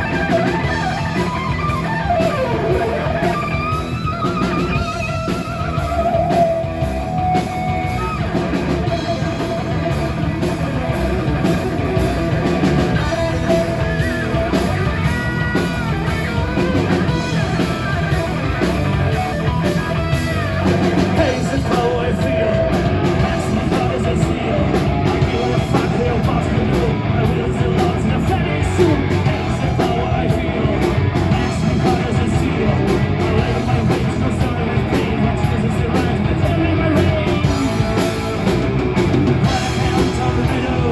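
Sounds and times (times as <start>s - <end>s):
drum kit: 0.0s - 40.9s
electric guitar: 0.0s - 40.9s
person singing: 18.6s - 40.9s.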